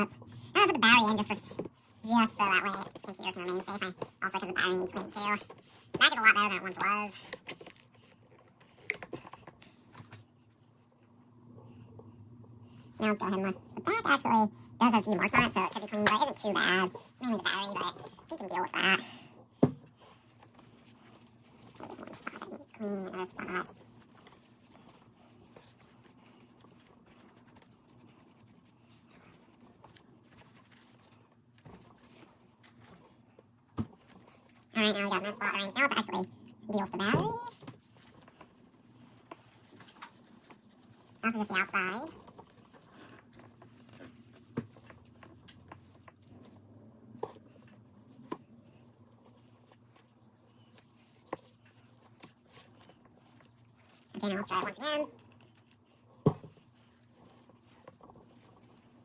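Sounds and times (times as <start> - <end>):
low steady hum: 0.0 - 59.0
paper towel scrubbing plastic: 13.0 - 19.1, 19.9 - 59.0.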